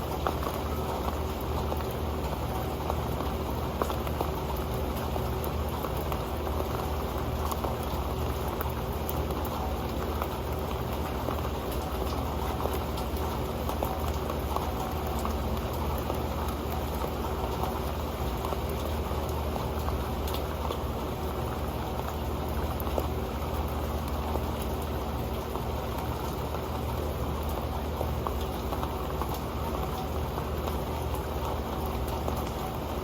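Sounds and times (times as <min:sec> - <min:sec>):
rain pattering on a pan: 0:00.0 - 0:33.0.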